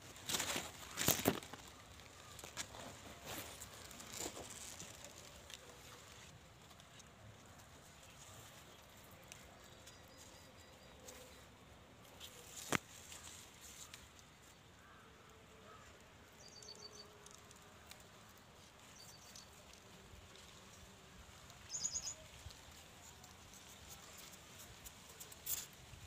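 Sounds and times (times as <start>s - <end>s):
small bird quick high chirps: 21.7s - 22.2s.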